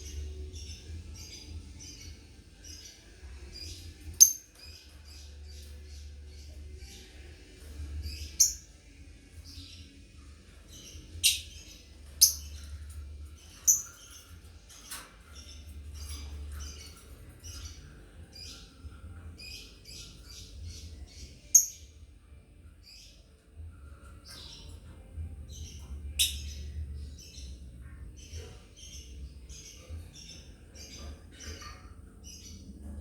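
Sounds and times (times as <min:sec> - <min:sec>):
lovebirds chirping: 0:00.0 - 0:22.1.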